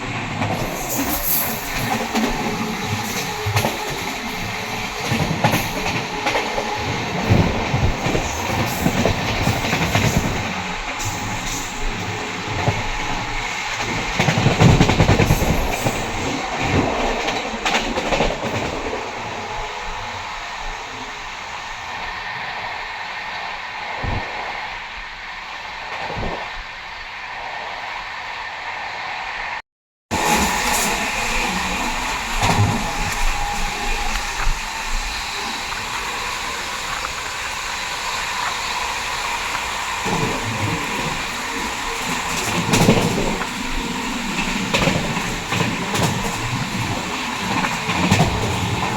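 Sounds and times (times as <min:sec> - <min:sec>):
train wheels clattering over rail joints: 0:00.0 - 0:19.1, 0:30.2 - 0:48.9
train rumbling and clanking: 0:00.0 - 0:29.5, 0:30.1 - 0:48.9.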